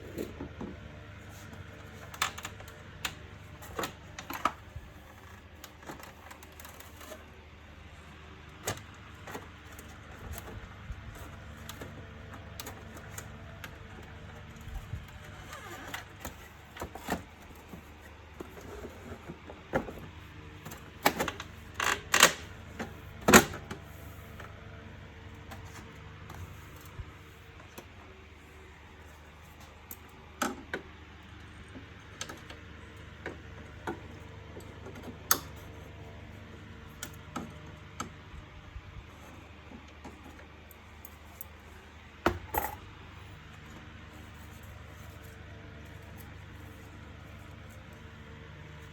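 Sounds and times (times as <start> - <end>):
plastic parts clicking and knocking: 14.5 - 23.8.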